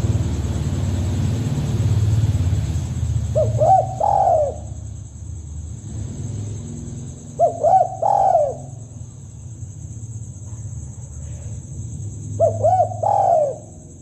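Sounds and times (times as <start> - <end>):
steady low hum: 0.0 - 14.0
dove cooing: 3.2 - 4.8, 7.2 - 9.0, 12.3 - 14.0.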